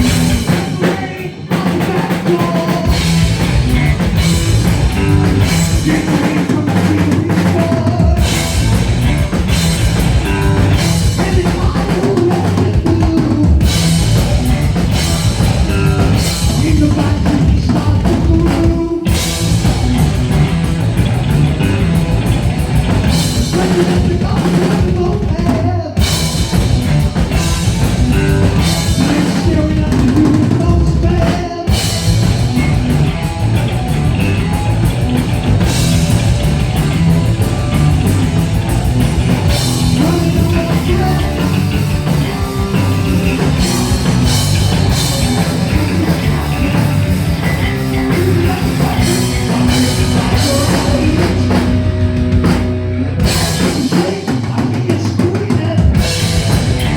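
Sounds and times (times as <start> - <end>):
person singing: 0.0 - 3.4, 5.0 - 8.8, 10.2 - 14.0, 28.0 - 32.0, 39.6 - 52.0, 53.2 - 56.9
heavy metal band playing: 0.0 - 56.9.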